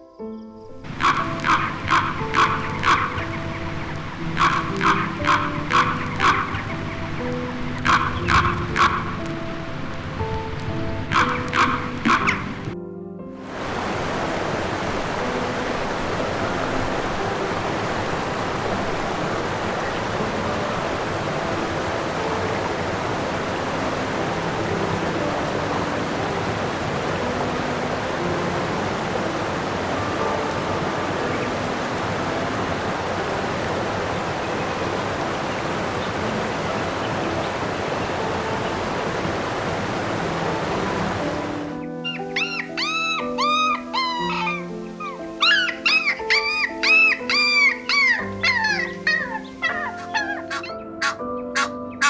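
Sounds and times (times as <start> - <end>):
running water rushing: 0.8 - 11.4, 13.4 - 41.8.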